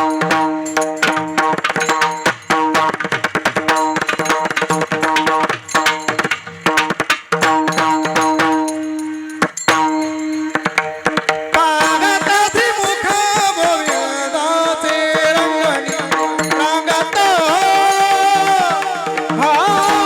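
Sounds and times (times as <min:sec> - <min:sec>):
mridang drum strokes: 0:00.0 - 0:20.0
person singing devotional line: 0:11.5 - 0:20.0.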